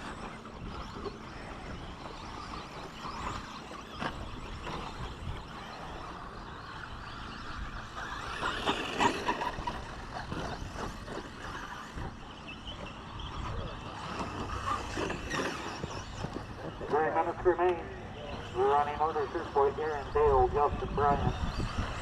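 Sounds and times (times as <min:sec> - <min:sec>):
rc truck motors and tyres: 0:00.0 - 0:22.0.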